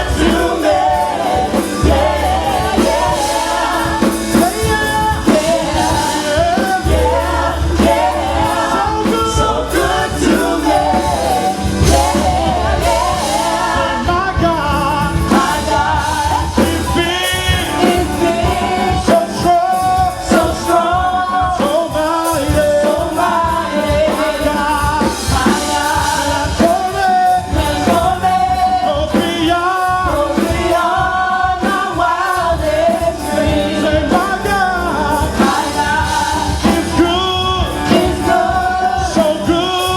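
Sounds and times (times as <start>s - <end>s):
bass line: 0.0s - 21.2s, 32.6s - 39.9s
drums: 0.0s - 39.9s
voices singing worship song: 0.0s - 39.9s.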